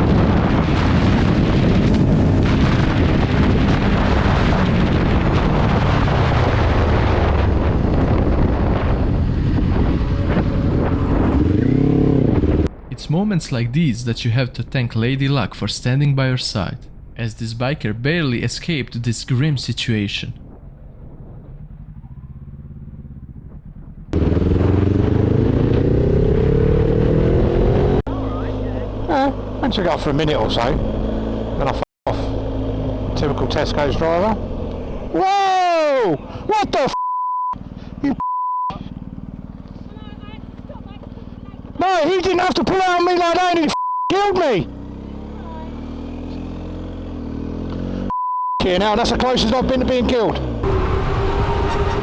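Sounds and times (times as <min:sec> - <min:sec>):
wind buffeting microphone: 0:00.0 - 0:12.8
motorcycle engine running: 0:07.4 - 0:12.7, 0:21.0 - 0:36.5, 0:37.6 - 0:43.6, 0:44.4 - 0:48.1
motorcycle engine idling: 0:21.4 - 0:24.4, 0:38.7 - 0:42.1, 0:44.7 - 0:48.0.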